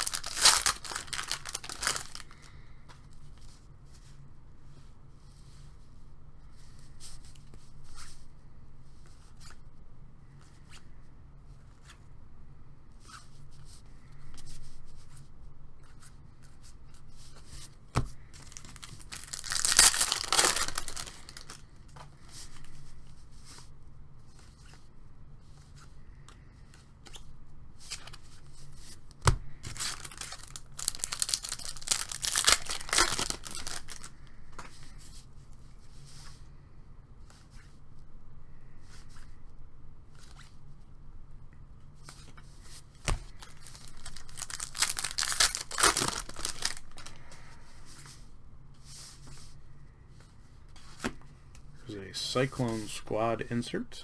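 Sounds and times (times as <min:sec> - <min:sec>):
card packs being torn open: 0:00.0 - 0:02.5, 0:18.4 - 0:21.6, 0:29.6 - 0:34.1, 0:43.1 - 0:47.2
cards rustling and clicking: 0:00.0 - 0:02.6, 0:17.9 - 0:22.7, 0:27.9 - 0:34.8, 0:42.0 - 0:47.4, 0:52.4 - 0:53.8.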